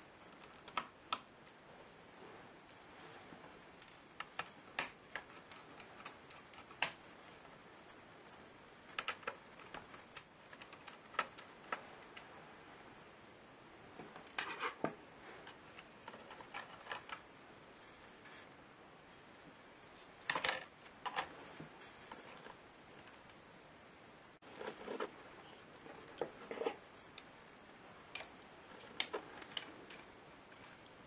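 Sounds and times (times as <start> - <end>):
small clicks and taps: 0.3 - 1.3, 3.8 - 7.0, 8.9 - 12.3.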